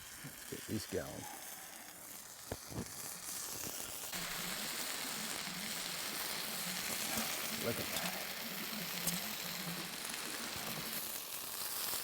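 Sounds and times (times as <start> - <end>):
meat sizzling: 0.0 - 12.0.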